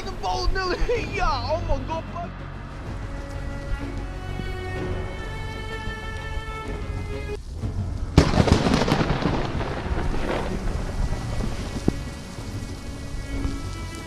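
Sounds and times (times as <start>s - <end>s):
rain hiss: 0.0s - 14.0s
thunder crack and rumble: 7.6s - 13.7s.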